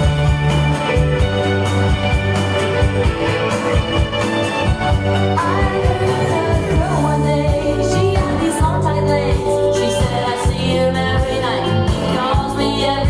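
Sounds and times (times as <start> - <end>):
drum beat: 0.0 - 7.8
pop rock song: 0.0 - 13.0
woman singing: 5.3 - 13.0.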